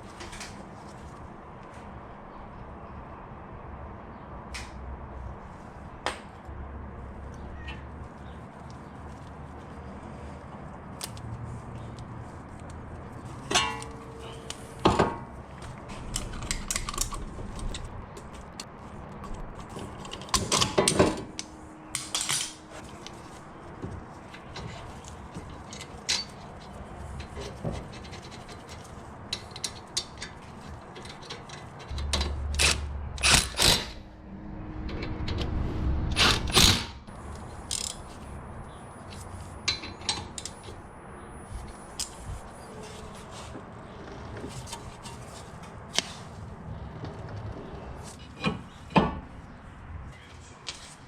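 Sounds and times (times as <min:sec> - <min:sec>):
metal brake parts clanking: 0:13.4 - 0:15.3.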